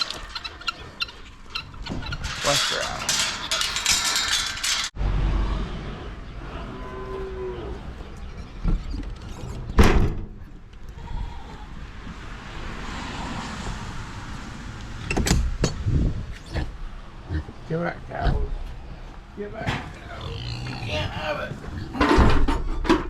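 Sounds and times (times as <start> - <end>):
cattle mooing: 6.4 - 8.1.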